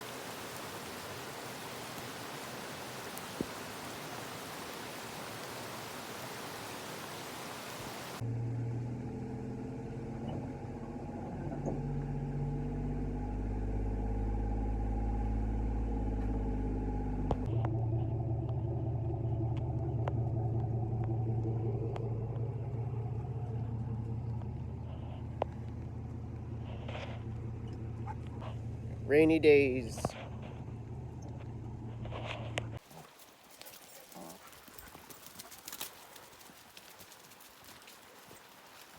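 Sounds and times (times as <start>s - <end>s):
rain hiss: 0.0s - 8.2s, 32.8s - 38.9s
vehicle engine drone: 0.0s - 32.8s.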